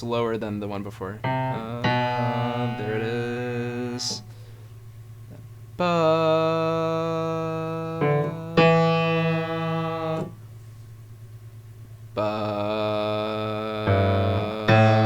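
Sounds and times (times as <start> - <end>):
steady low tone: 1.1 - 5.1, 5.8 - 10.4, 12.2 - 15.0
sustained keyboard notes: 1.2 - 4.3, 7.6 - 10.4, 13.8 - 15.0.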